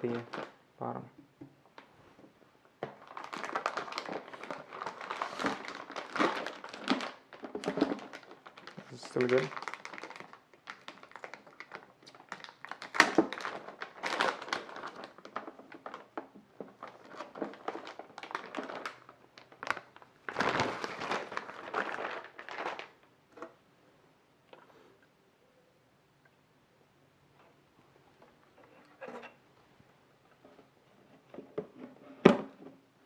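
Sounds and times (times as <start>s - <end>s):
packaging rustling and crinkling: 0.0s - 0.6s, 2.8s - 23.6s.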